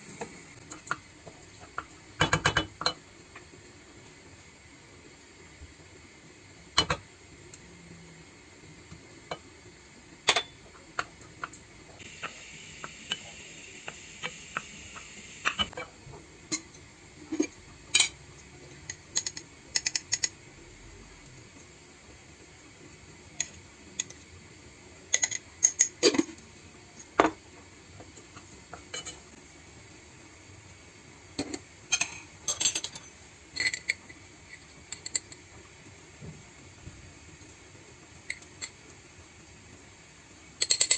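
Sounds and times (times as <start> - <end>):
steady hiss: 0.0 - 40.9
dishes and cutlery clinking: 28.9 - 29.2.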